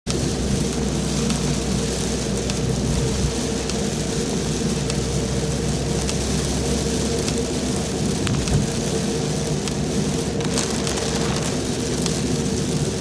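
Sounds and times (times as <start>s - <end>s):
heavy rain: 0.1s - 13.0s
drop ticks: 3.6s - 3.8s.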